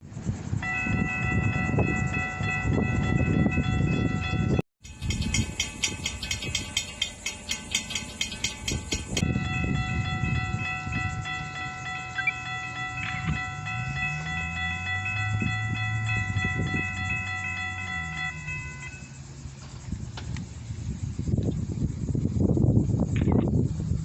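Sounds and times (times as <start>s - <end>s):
diesel train engine rumble: 0.0s - 24.0s
high ringing tones: 0.4s - 19.9s.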